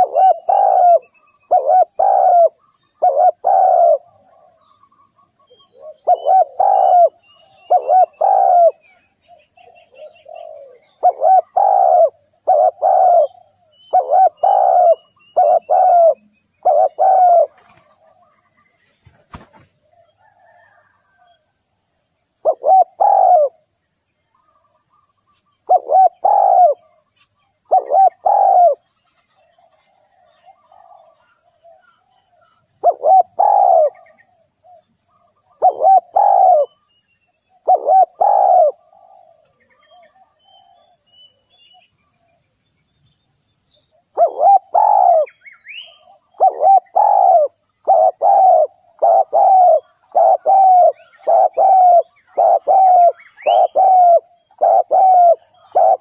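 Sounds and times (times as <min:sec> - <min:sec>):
dove cooing: 0:00.0 - 0:04.8, 0:05.4 - 0:21.4, 0:22.4 - 0:23.7, 0:25.6 - 0:27.0, 0:27.6 - 0:28.8, 0:29.5 - 0:36.8, 0:37.5 - 0:41.0, 0:44.0 - 0:56.0.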